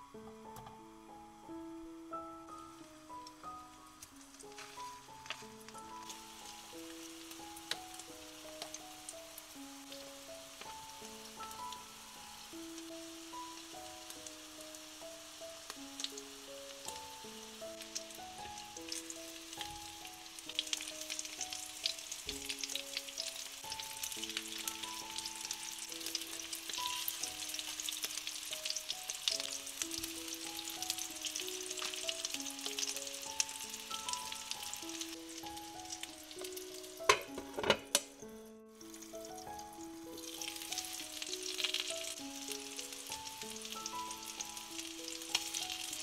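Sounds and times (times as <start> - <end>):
patties sizzling in oil: 0.0 - 46.0
soft background music: 0.0 - 46.0
glass lid clinking on pan: 37.1 - 38.1.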